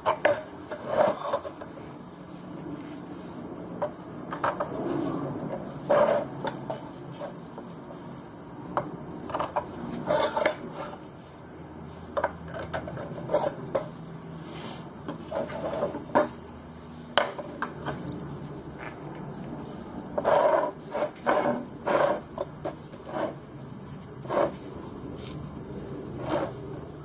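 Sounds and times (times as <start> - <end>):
metal parts and tools clinking: 9.3 - 11.1, 12.2 - 14.0, 17.2 - 19.0, 19.7 - 23.4.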